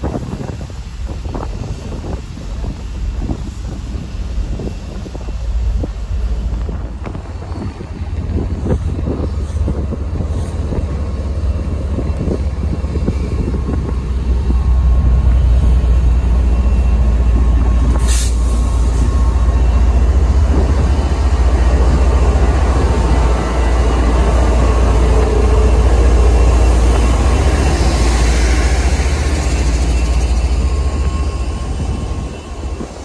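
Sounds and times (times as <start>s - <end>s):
diesel train passing: 0.0s - 33.0s
wind buffeting microphone: 0.0s - 33.0s
sharp hiss: 17.9s - 19.2s.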